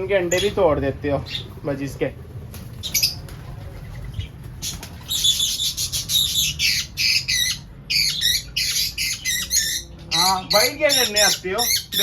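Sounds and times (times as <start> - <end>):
parrot squawking: 4.7 - 12.0.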